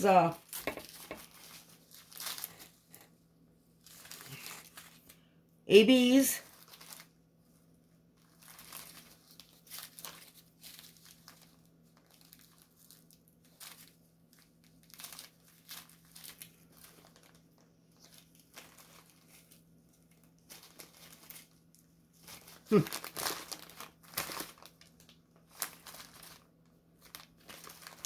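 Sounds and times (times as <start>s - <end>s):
plastic bags crinkling: 0.0s - 28.0s.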